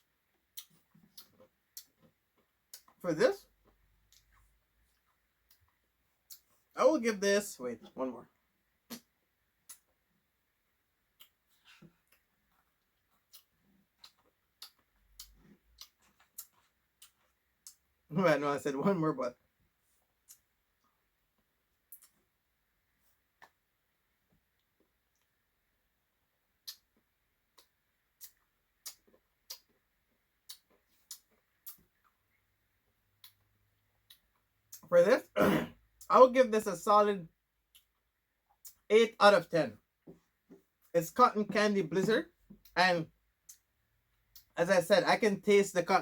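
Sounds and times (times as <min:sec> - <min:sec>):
soft eating sounds: 0:00.0 - 0:06.8, 0:07.8 - 0:18.1, 0:19.6 - 0:34.9, 0:37.3 - 0:38.9.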